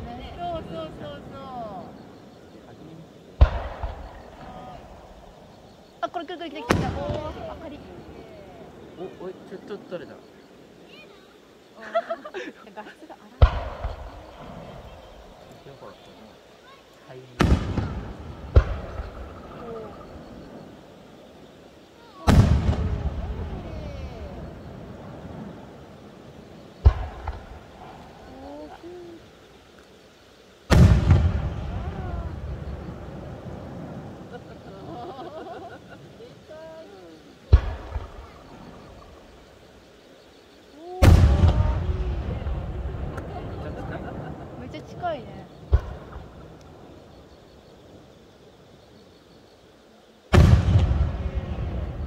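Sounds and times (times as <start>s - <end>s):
low background noise: 0.0s - 52.0s
firework shells bursting: 3.4s - 5.7s, 13.4s - 15.6s, 17.4s - 20.8s, 22.2s - 28.4s, 30.7s - 34.6s, 37.4s - 39.5s, 45.6s - 47.3s, 50.3s - 52.0s.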